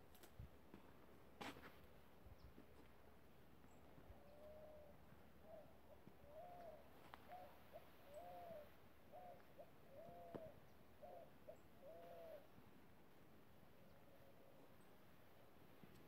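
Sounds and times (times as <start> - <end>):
bird hooting: 4.1 - 12.6.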